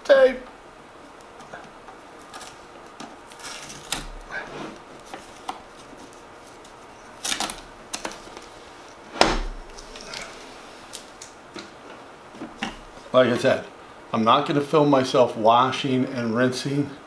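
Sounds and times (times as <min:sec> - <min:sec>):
packing tape being pulled off: 0:02.2 - 0:08.5
plastic parts clicking and rustling: 0:05.0 - 0:08.5.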